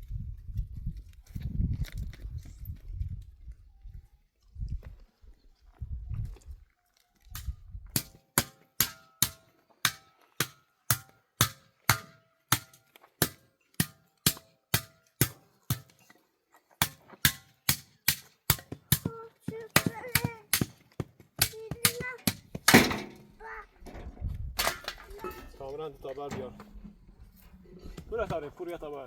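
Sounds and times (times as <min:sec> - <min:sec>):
tool striking with ringing blows: 0:08.0 - 0:16.1, 0:16.8 - 0:20.8
person speaking: 0:19.1 - 0:20.5.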